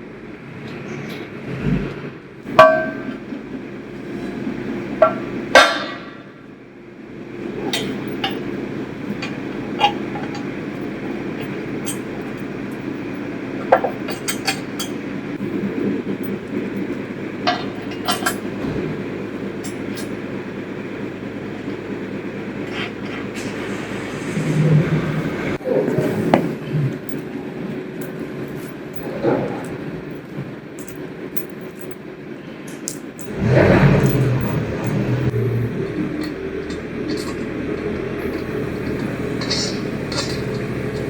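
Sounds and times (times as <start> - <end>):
metal tools clinking: 9.1 - 15.0, 16.2 - 18.5, 25.9 - 41.0
low rumble: 33.2 - 41.0.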